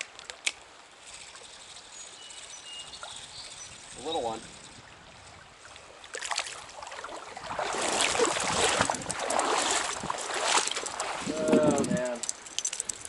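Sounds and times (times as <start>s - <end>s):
fish splashing in stream: 5.9s - 11.3s.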